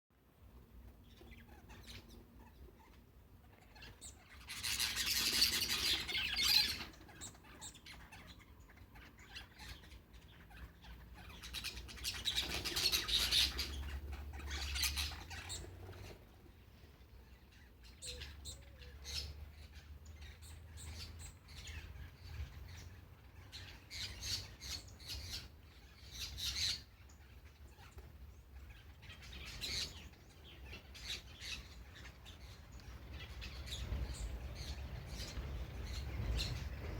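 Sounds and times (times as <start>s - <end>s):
birds calling: 0.9s - 36.9s.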